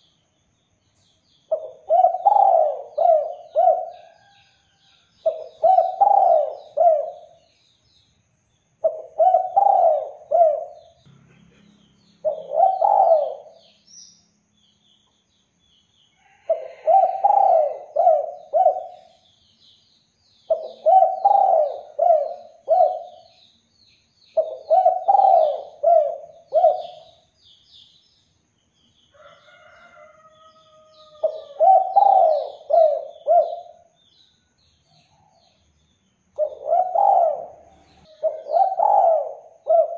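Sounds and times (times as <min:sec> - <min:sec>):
small birds chirping: 0:00.0 - 0:39.9
dove cooing: 0:01.5 - 0:04.4, 0:05.2 - 0:07.4, 0:08.8 - 0:11.0, 0:12.2 - 0:13.6, 0:16.5 - 0:19.2, 0:20.5 - 0:23.3, 0:24.4 - 0:27.2, 0:31.0 - 0:33.9, 0:36.4 - 0:39.9.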